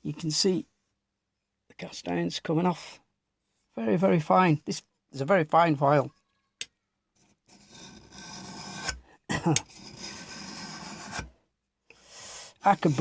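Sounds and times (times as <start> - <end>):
file scraping cast iron: 7.5 - 9.0, 9.6 - 11.3, 12.6 - 13.0.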